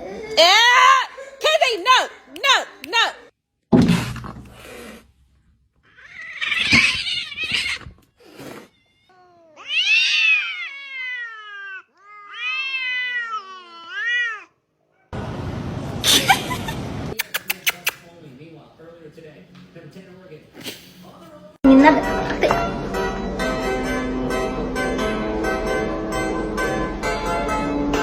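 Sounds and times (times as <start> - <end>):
cat yowling: 5.9 - 7.9, 8.5 - 14.6.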